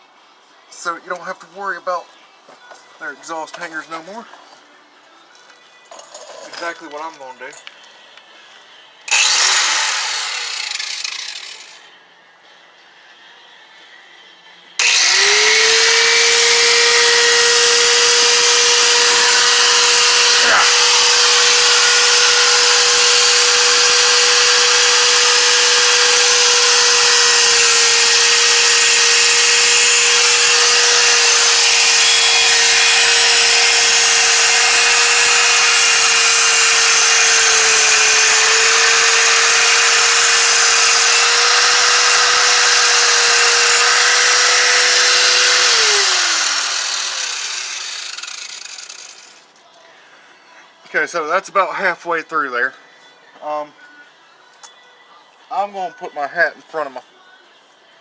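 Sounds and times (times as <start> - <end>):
angle grinder cutting steel: 9.1 - 11.9, 14.8 - 49.5.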